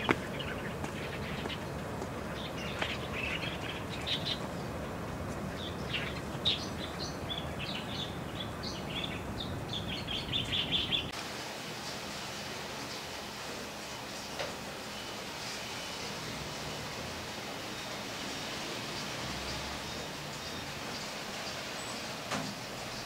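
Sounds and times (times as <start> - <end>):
small birds chirping: 0.0 - 11.2, 12.7 - 23.0
outdoor background noise: 0.0 - 23.0
steady hiss: 10.0 - 23.0.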